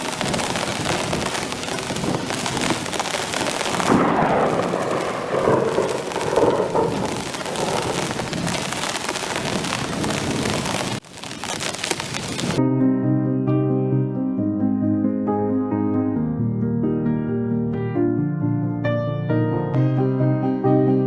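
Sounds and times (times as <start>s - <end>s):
distant thunder rolling: 0.0s - 11.0s
heavy rain pouring: 0.0s - 12.6s.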